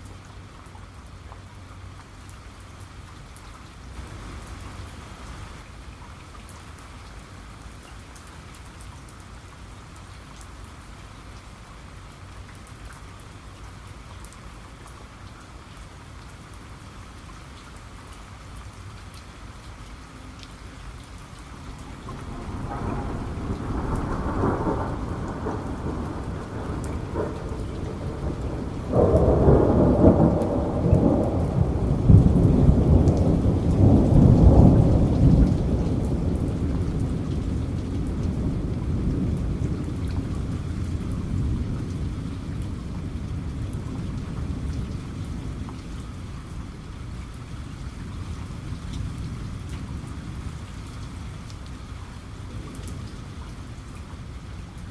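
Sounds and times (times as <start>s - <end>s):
steady rain: 0.0s - 54.9s
thunder rolling: 21.6s - 42.2s.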